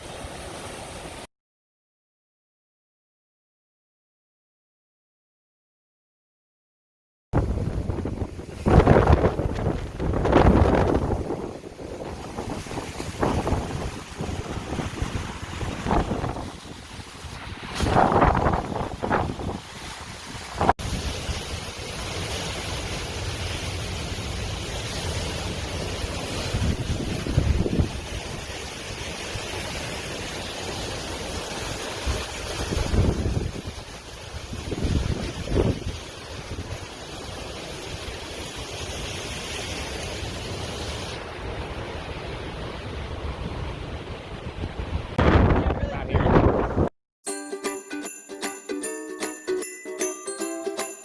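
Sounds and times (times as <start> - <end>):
wind buffeting microphone: 7.4 - 21.1, 26.4 - 28.6, 32.0 - 37.0, 41.8 - 46.9
strong wind: 7.4 - 22.0, 22.6 - 46.9
crashing surf: 7.4 - 46.9.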